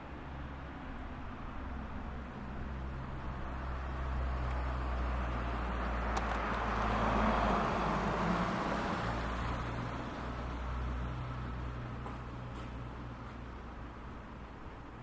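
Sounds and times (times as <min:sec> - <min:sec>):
car passing by: 0:02.6 - 0:12.8.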